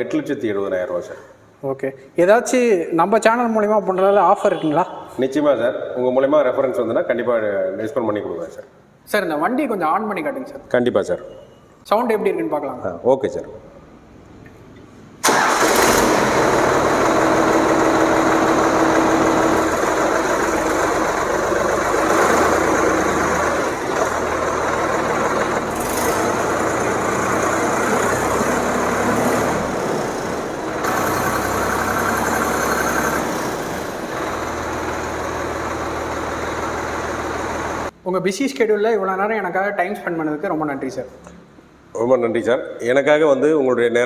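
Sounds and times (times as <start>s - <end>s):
tractor diesel engine idling: 15.2s - 37.9s.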